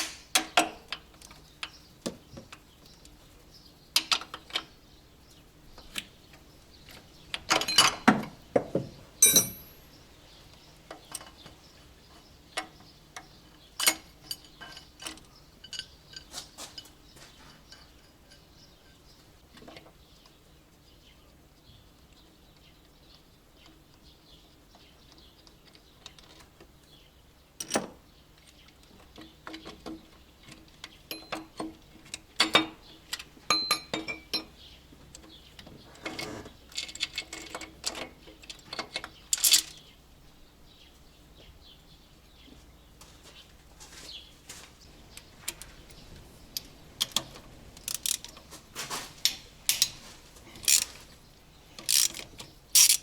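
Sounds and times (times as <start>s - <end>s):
metal tools clinking: 7.5s - 8.2s, 9.2s - 9.9s, 13.8s - 19.0s, 33.5s - 34.5s, 36.1s - 39.8s, 47.8s - 51.1s, 51.8s - 53.0s.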